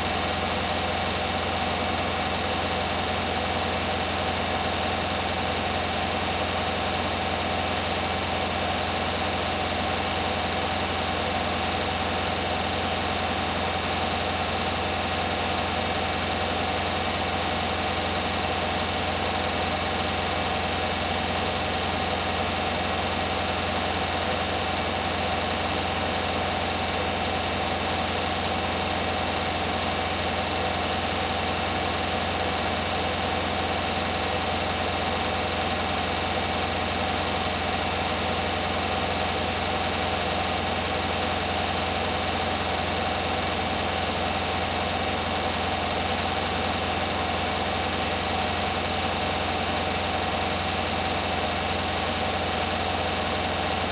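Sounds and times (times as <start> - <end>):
washing machine spinning: 0.0 - 53.9.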